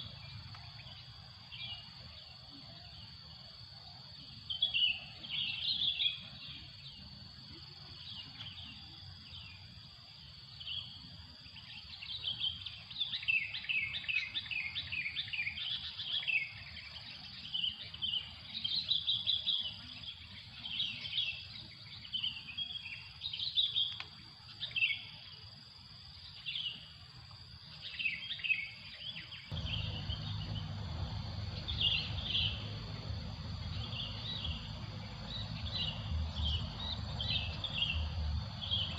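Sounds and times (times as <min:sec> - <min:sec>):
high insect drone: 0:00.0 - 0:38.9
songbirds chirping: 0:00.0 - 0:38.9
low rumble: 0:29.5 - 0:38.9.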